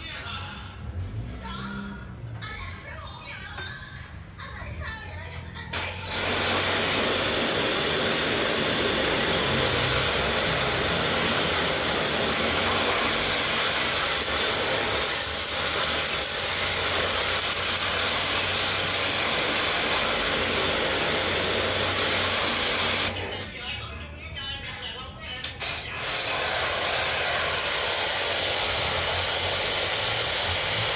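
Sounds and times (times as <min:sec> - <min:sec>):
cleaning jet hissing rush: 0:05.8 - 0:23.4, 0:25.6 - 0:30.9.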